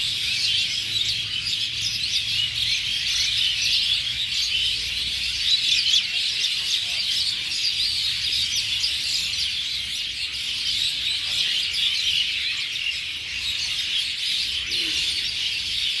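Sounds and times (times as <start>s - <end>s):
flock of small birds chirping: 0.0s - 16.0s.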